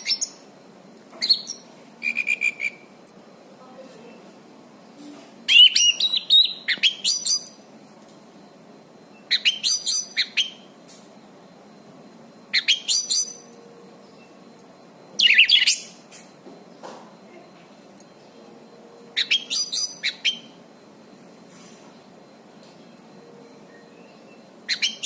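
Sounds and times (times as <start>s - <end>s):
thrush singing whistled notes: 1.2s - 3.4s, 5.5s - 7.6s, 9.1s - 10.8s, 12.4s - 14.5s, 15.1s - 16.1s, 19.2s - 20.6s, 23.2s - 25.0s.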